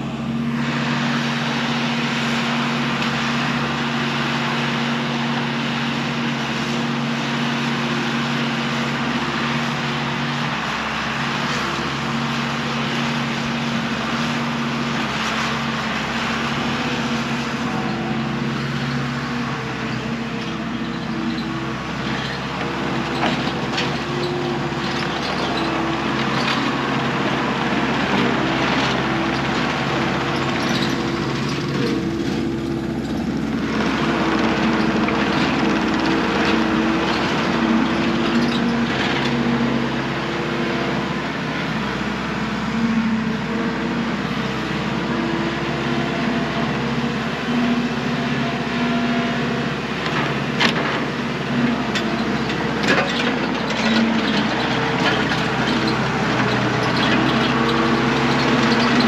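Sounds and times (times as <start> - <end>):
loader engine running: 0.0 - 59.0.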